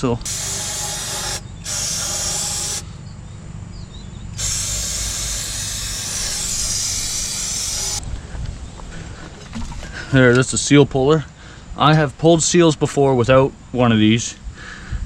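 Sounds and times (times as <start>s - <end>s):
aerosol spray hissing: 0.0s - 2.9s, 4.4s - 8.0s.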